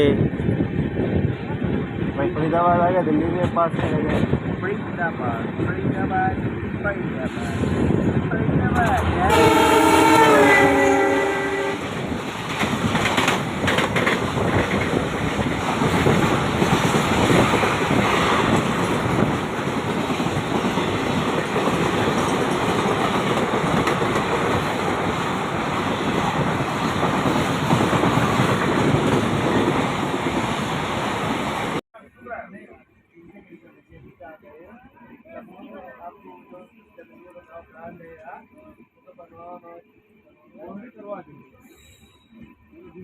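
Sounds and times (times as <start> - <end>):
train rumbling and rattling: 0.0 - 31.8.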